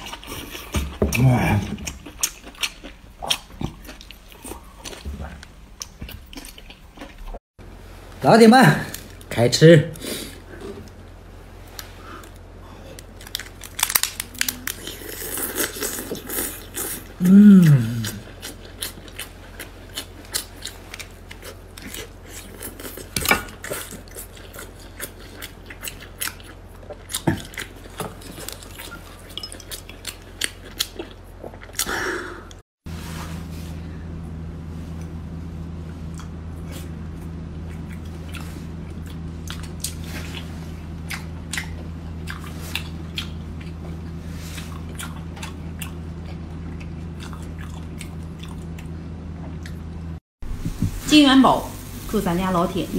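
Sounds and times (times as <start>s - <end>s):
steady low hum: 0.0s - 52.9s
wet chewing and mouth clicks: 1.6s - 7.4s, 37.7s - 43.9s.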